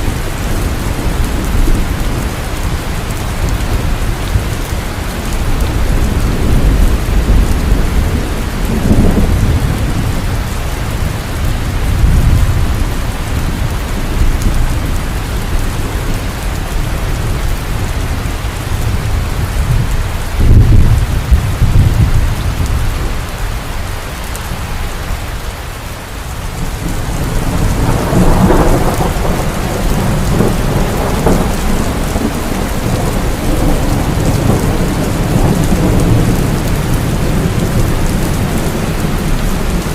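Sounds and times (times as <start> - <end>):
rolling thunder: 0.0 - 23.3, 26.5 - 39.9
heavy rain falling: 0.0 - 39.9.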